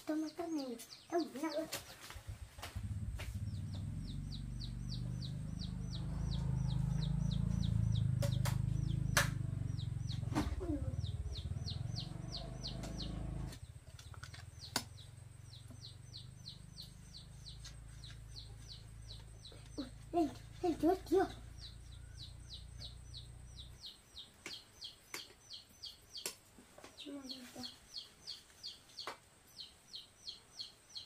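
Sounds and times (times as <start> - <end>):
small bird chirping: 0.0 - 31.0
low rumble: 2.2 - 13.6.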